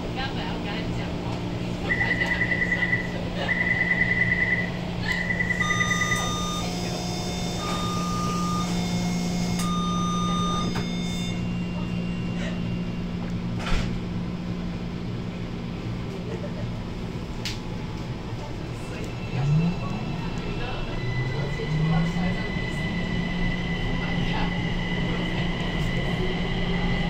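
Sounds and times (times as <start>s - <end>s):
electronic chime tones: 5.3s - 6.7s, 7.3s - 13.0s.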